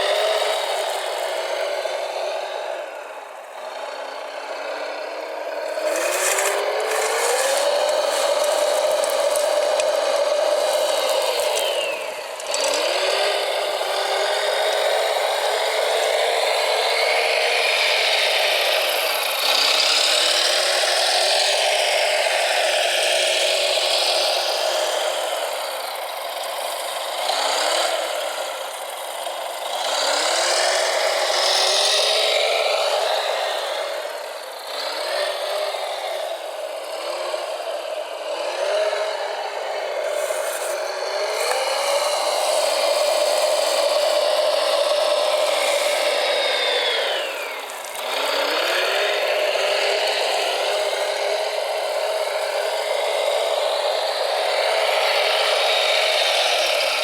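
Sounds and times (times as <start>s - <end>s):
electric motors whining: 0.0s - 57.0s
steady grinding noise: 0.0s - 57.0s.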